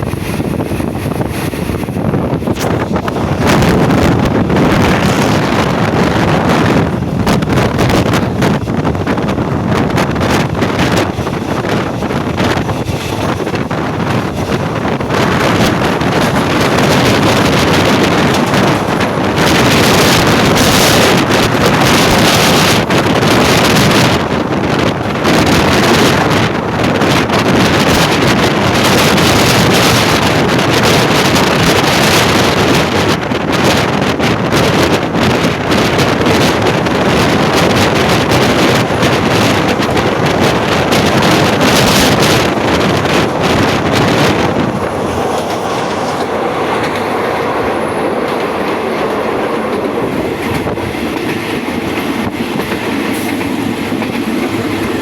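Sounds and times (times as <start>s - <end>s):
passenger train running: 0.0s - 55.0s
wind buffeting microphone: 0.0s - 55.0s.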